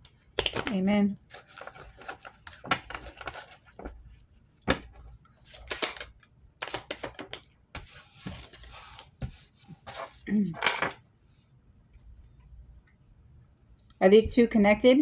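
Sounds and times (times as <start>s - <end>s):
cards being shuffled: 0.4s - 4.0s, 4.7s - 11.0s.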